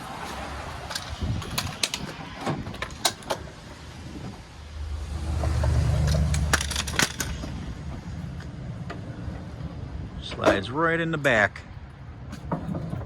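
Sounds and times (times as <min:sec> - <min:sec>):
tray rolling on rails rumble: 0:00.0 - 0:13.0
metallic clicks and knocks: 0:00.8 - 0:03.6, 0:05.5 - 0:09.0.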